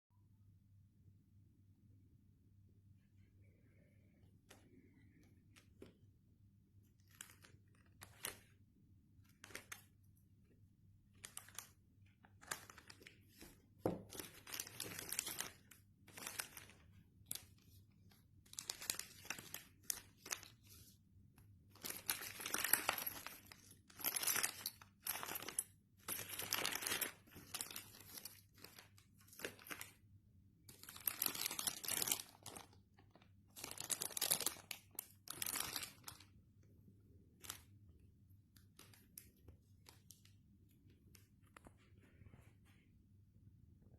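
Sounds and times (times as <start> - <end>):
packaging crinkling and tearing: 9.3 - 9.9, 12.3 - 17.7, 21.8 - 30.0, 30.7 - 36.2.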